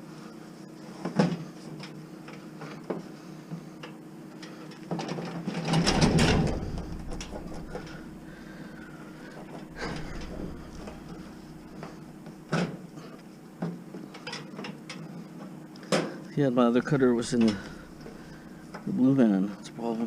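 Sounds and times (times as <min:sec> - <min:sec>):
handling knocks: 0:05.8 - 0:08.6, 0:09.2 - 0:12.6
scuffing burst with low rumble: 0:06.1 - 0:08.7.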